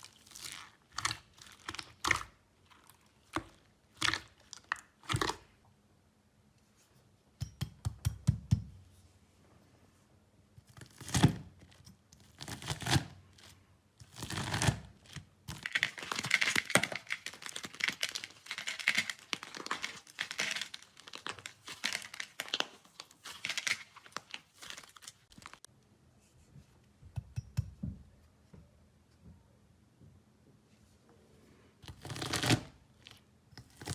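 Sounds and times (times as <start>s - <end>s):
slime squishing: 0.0s - 5.6s.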